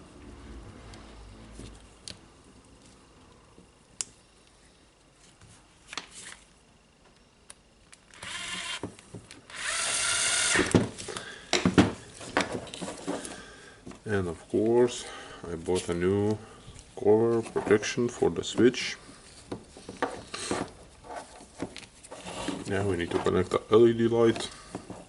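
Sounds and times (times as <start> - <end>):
small power tool running: 8.2 - 8.9, 9.5 - 10.8.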